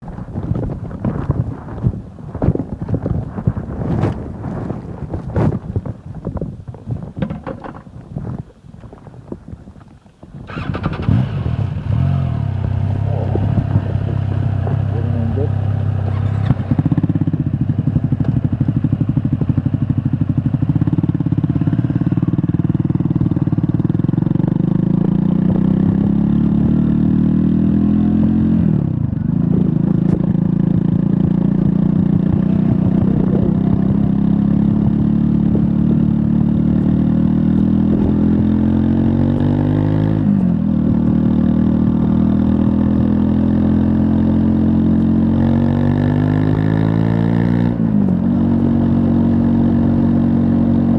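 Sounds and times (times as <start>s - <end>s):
motorcycle engine revving: 10.4s - 50.9s.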